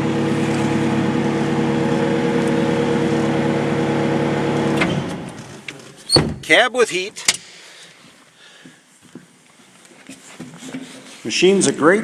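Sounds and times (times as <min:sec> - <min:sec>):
diesel engine running: 0:00.0 - 0:05.5.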